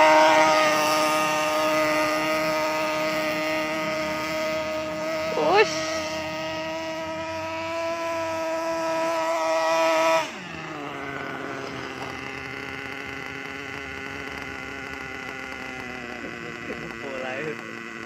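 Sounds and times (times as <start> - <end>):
nitro engine running: 0.0 - 18.0.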